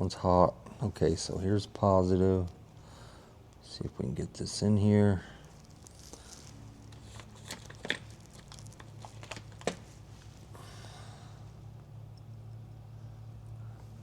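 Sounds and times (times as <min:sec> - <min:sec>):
faint low hum: 0:00.0 - 0:14.0
small handling clicks and rustles: 0:02.2 - 0:03.8, 0:05.3 - 0:10.5.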